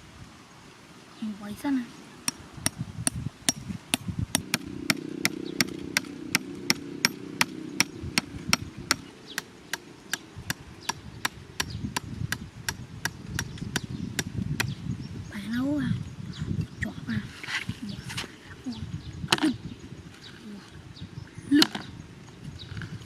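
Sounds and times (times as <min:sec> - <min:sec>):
sharp chopping strikes: 0:02.3 - 0:14.8
low hum: 0:03.1 - 0:13.1.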